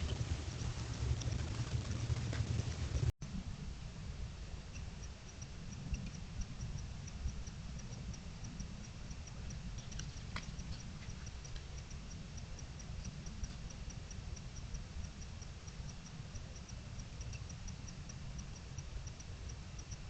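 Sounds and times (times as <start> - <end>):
low rumble: 0.0 - 19.6
sharp clicks: 4.8 - 20.0.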